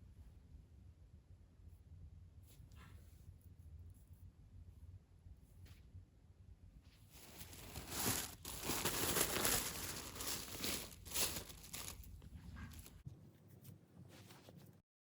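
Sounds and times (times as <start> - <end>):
crinkling and rustling: 6.9 - 14.8.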